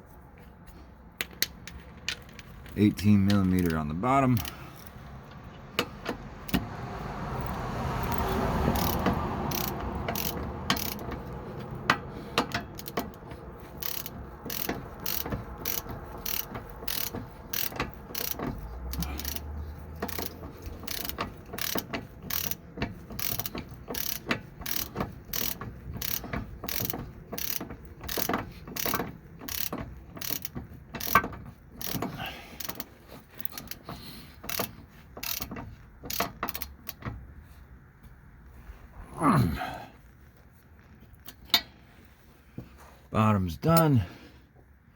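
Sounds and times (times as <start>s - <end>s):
ratchet clicking: 4.4s - 6.7s, 7.3s - 37.1s.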